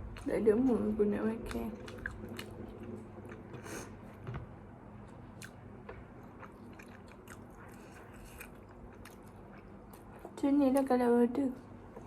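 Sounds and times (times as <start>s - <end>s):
chewing and crunching: 0.0s - 3.7s, 5.0s - 10.9s
steady low hum: 0.0s - 12.0s.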